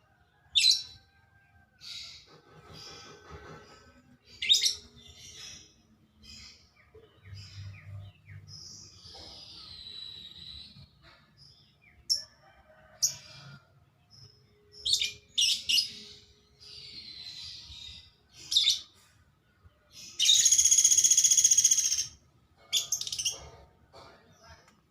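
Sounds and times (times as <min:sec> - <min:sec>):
woodpecker calling: 0:20.2 - 0:22.2
woodpecker rattling trill: 0:20.2 - 0:22.2.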